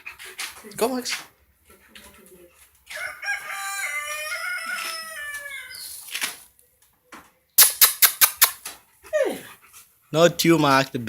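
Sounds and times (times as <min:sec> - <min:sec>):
rooster crowing: 0:02.9 - 0:05.9.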